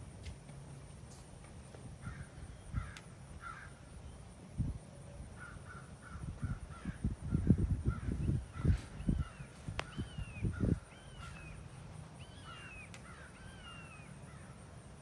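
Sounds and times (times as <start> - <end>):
bird calling: 5.4 - 14.6.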